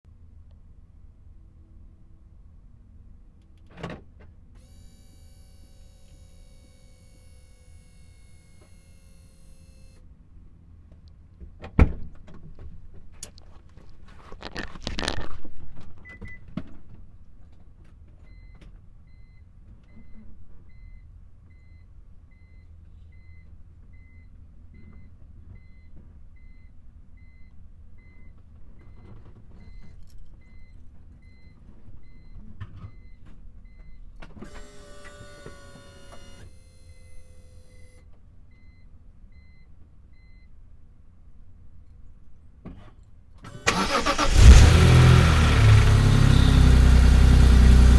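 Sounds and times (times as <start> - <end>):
small electric motor whirring: 4.6 - 10.0, 34.5 - 37.8
car engine starting: 43.5 - 47.9
car warning chime beeping: 43.7 - 44.7.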